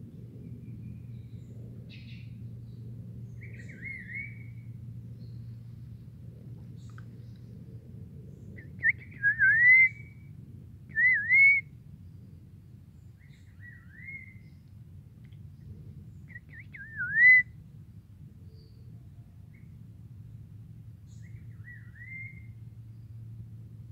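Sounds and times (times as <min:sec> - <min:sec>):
bird singing whistled phrases: 0:03.5 - 0:04.6, 0:08.6 - 0:10.2, 0:10.9 - 0:11.7, 0:13.5 - 0:14.6, 0:16.3 - 0:17.5, 0:21.2 - 0:22.6.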